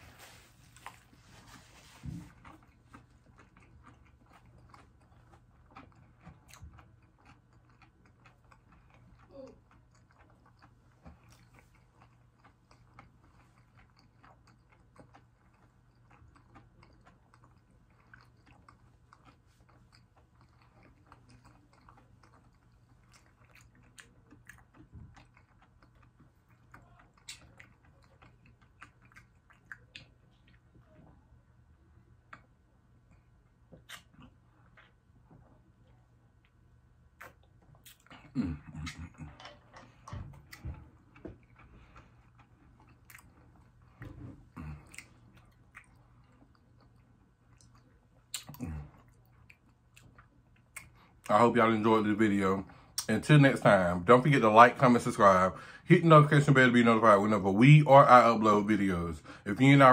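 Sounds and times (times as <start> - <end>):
crunchy chewing: 0.1 - 30.9, 36.4 - 51.3
wet mouth clicks: 33.8 - 34.3, 48.3 - 48.6.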